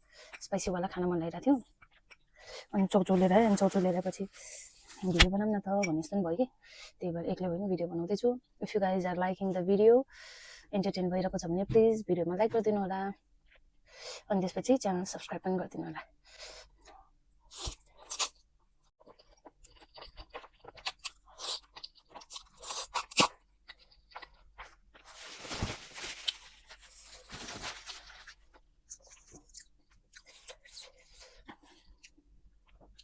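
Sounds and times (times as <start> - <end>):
crunchy bites and chewing: 19.1 - 31.4.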